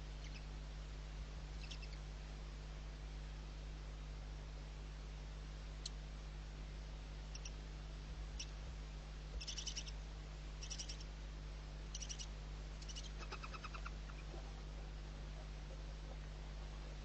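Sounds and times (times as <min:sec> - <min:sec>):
steady low hum: 0:00.0 - 0:17.0
owl chick high-pitched ticking calls: 0:00.2 - 0:00.5, 0:01.5 - 0:02.0, 0:07.3 - 0:07.6, 0:08.4 - 0:08.6, 0:09.4 - 0:10.0, 0:10.6 - 0:11.1, 0:11.9 - 0:14.3.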